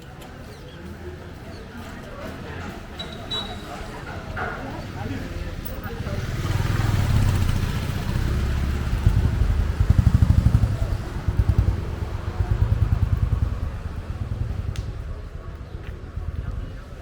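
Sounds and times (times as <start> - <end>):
motorcycle engine running: 6.0 - 16.4.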